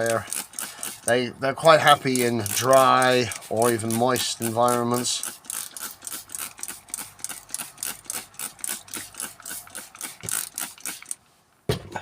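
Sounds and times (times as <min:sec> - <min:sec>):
spray bottle squirting: 0:00.0 - 0:11.2.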